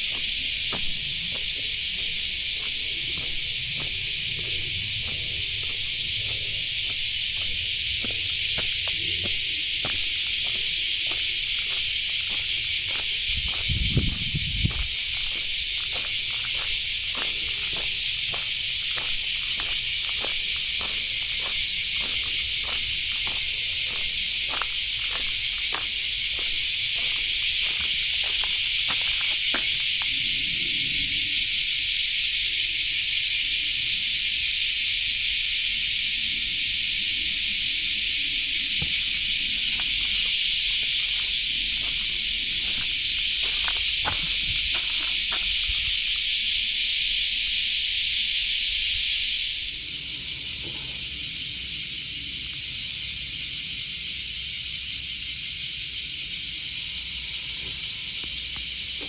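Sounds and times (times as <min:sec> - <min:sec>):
faint footsteps: 0:00.0 - 0:30.1, 0:38.8 - 0:46.0
insects chorus: 0:00.0 - 0:59.0.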